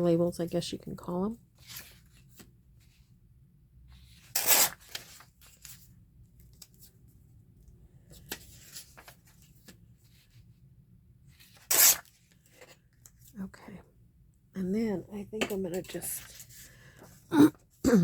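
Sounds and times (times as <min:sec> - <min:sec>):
paper rustling: 0:04.0 - 0:06.9, 0:08.1 - 0:10.4
book page tearing: 0:04.1 - 0:05.8, 0:11.4 - 0:12.2.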